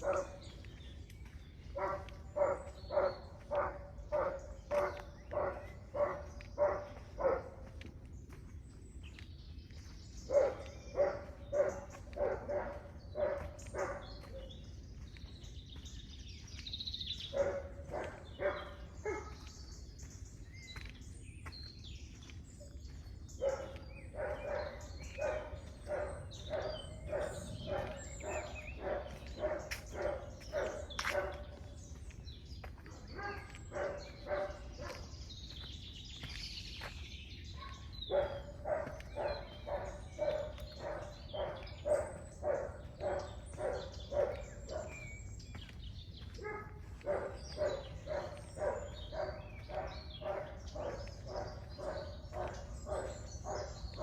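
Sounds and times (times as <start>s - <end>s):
dog barking: 0.0s - 0.7s, 1.7s - 7.9s, 10.3s - 14.7s, 17.2s - 19.5s, 23.3s - 31.8s, 32.7s - 35.6s, 37.5s - 54.0s
faint birds chirping: 0.0s - 54.0s.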